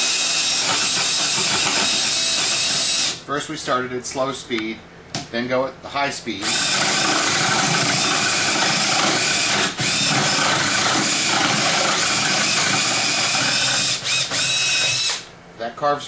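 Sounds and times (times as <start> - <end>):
drill whirring into wood: 0.0 - 3.2, 6.4 - 15.3.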